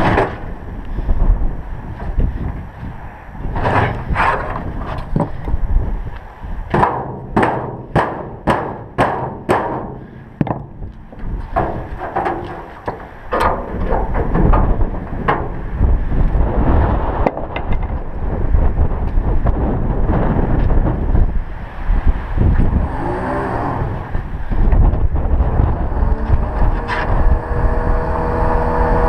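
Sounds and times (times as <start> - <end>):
wind rumble on microphone: 0.0 - 29.0
knocks and thumps on metal: 6.7 - 15.7.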